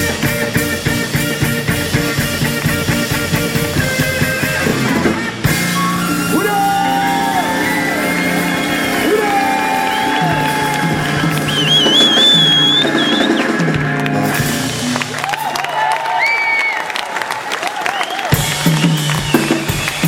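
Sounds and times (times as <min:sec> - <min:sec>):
sustained bass: 0:00.0 - 0:15.2
drumbeat: 0:00.0 - 0:15.4, 0:18.3 - 0:20.0
rock and roll band playing: 0:00.0 - 0:16.3, 0:18.2 - 0:20.0.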